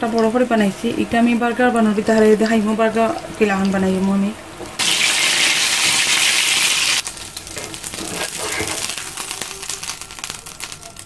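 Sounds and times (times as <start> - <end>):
patties sizzling in oil: 0.0 - 11.0
spatula scraping pan: 7.6 - 8.9.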